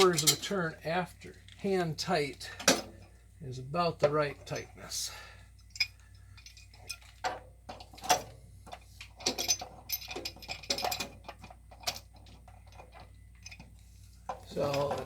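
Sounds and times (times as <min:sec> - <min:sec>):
metallic clicks of wrenches: 0:00.0 - 0:00.6, 0:05.6 - 0:15.0.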